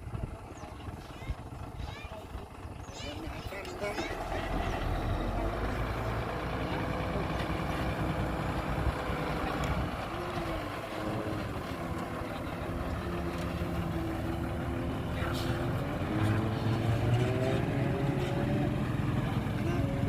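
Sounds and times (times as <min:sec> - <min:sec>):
diesel engine drone: 0:00.0 - 0:20.0.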